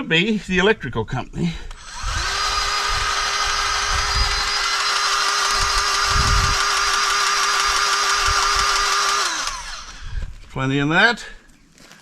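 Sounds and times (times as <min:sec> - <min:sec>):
grease gun motor running: 0:01.7 - 0:10.4.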